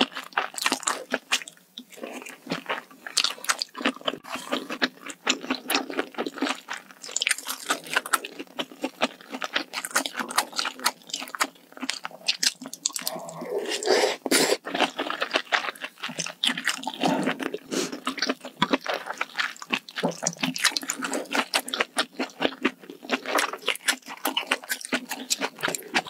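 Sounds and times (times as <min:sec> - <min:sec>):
chewing and crunching food: 0:00.0 - 0:26.0
wet mouth sounds: 0:09.7 - 0:26.0.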